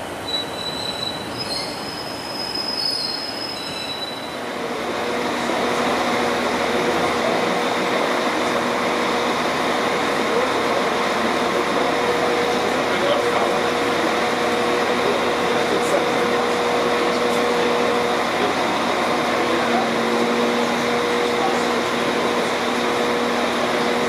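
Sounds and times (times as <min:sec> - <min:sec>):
tram pulling away: 0:00.0 - 0:24.0
high-pitched train wheel squeal: 0:00.2 - 0:04.5
steady hum: 0:04.3 - 0:24.0.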